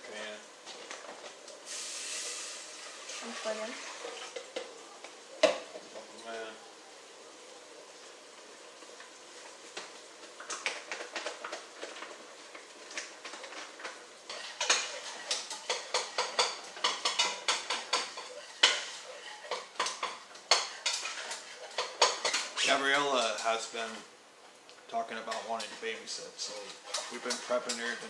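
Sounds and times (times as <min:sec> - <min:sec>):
metal whisk scraping saucepan: 0:14.3 - 0:23.6, 0:25.3 - 0:28.0.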